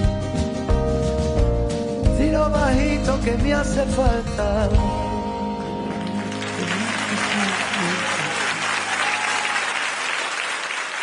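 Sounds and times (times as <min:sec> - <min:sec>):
audience applauding and cheering: 0:05.6 - 0:11.0.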